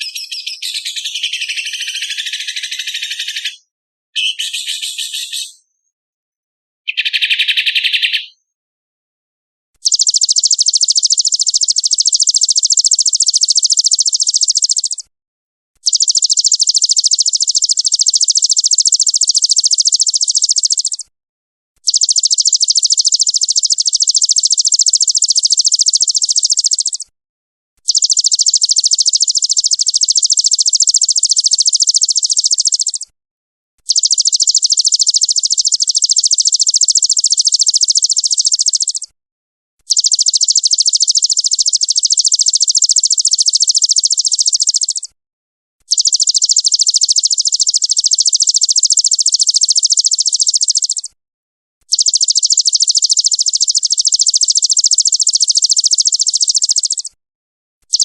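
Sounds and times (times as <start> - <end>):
songbird harsh pulsed trill: 0.0 - 3.4, 4.2 - 5.5
bird call: 0.0 - 3.5, 4.2 - 5.7, 6.9 - 8.4.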